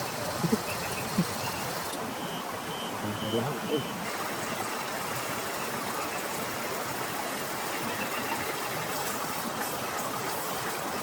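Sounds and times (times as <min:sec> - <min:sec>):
heavy rain falling: 0:02.9 - 0:11.0.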